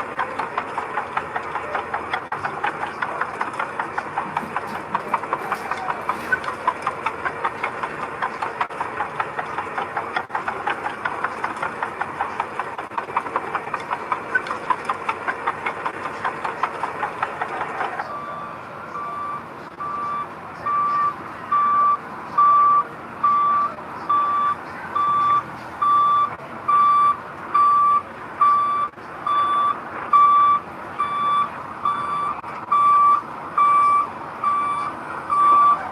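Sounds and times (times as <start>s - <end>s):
diesel engine clattering: 0.0s - 35.9s
reversing alarm beeping: 18.0s - 35.9s.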